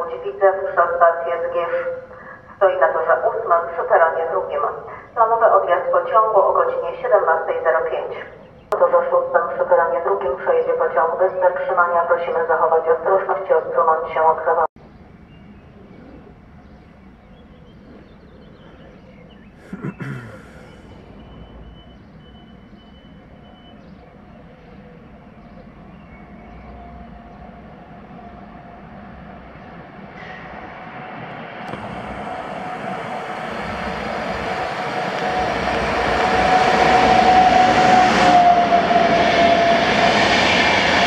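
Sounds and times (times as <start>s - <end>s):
electric train approaching: 20.4s - 41.0s.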